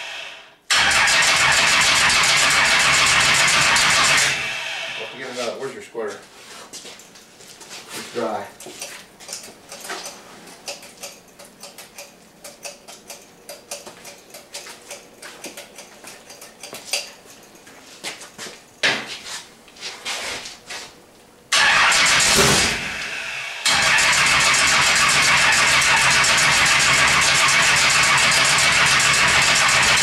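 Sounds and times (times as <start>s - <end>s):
car engine starting and running: 0.0s - 5.1s, 21.5s - 30.0s
hand tool clicks and rattles: 9.3s - 17.7s.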